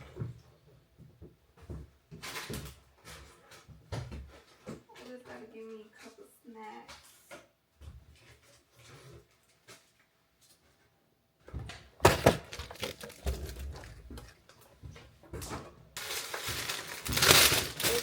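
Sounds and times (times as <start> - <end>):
knocks and clatter of items: 1.0 - 6.2, 11.4 - 18.0
rustling: 12.3 - 18.0.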